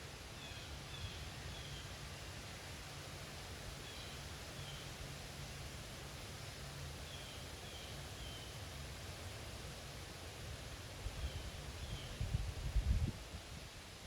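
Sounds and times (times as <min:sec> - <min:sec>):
leaves rustling in wind: 0:00.0 - 0:14.0
wind buffeting microphone: 0:12.0 - 0:13.3.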